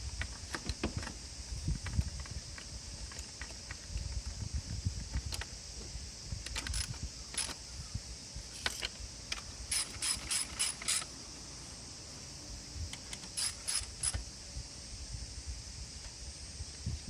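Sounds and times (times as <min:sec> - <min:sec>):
metallic clicks from hand tools: 0:06.4 - 0:07.6, 0:08.6 - 0:11.1, 0:12.9 - 0:14.2.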